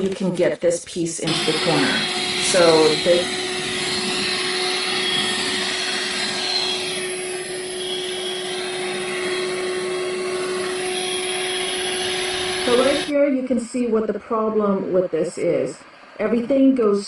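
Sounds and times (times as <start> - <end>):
cordless vacuum motor whine: 1.2 - 13.1.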